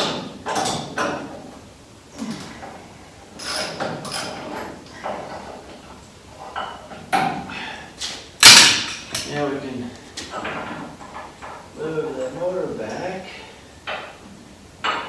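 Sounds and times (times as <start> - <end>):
metal tools scraping and clunking: 3.4 - 5.6, 8.4 - 9.5, 10.2 - 13.2.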